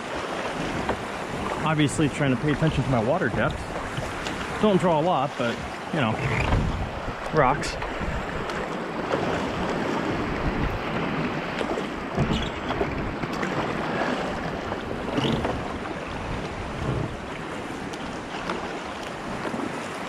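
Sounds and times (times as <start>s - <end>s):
waves splashing: 0.0s - 20.0s
wind buffeting microphone: 5.5s - 19.9s.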